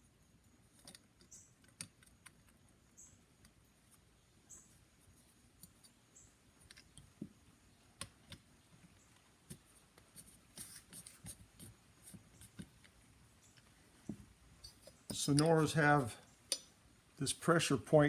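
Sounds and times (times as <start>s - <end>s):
small metal parts clicking and tapping: 14.6s - 15.6s.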